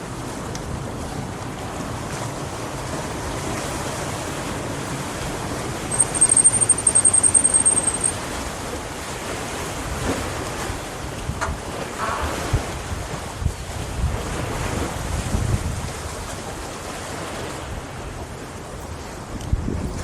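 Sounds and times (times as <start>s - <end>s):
small waves washing ashore: 0.0s - 20.0s
wind on microphone: 0.0s - 20.0s
high pulsing trill: 5.8s - 8.2s.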